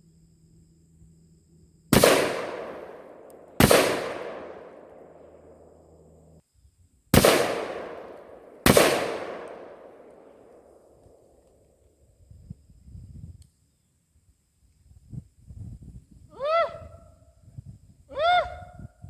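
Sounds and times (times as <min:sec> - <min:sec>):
gunshots with echo: 0:02.0 - 0:05.6, 0:07.2 - 0:11.0.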